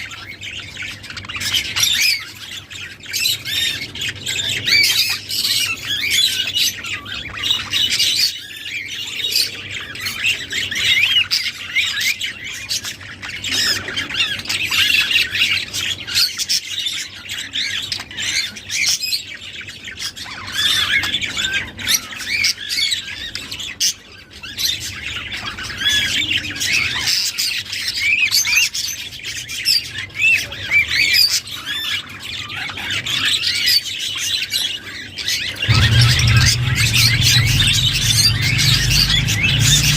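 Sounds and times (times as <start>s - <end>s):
budgerigars chattering and warbling: 35.6s - 39.9s.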